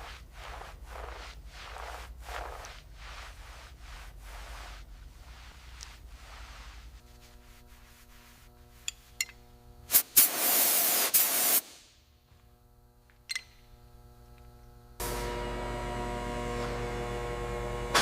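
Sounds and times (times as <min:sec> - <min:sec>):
steady electrical hum: 0:00.0 - 0:18.0
hissing spray: 0:09.9 - 0:11.8.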